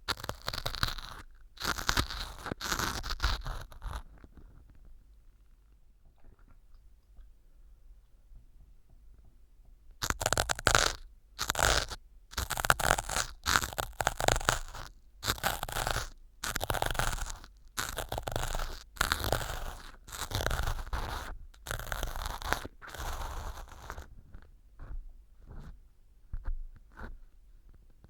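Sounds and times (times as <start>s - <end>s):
ear pick scraping foam: 0.1s - 4.1s, 10.0s - 24.5s.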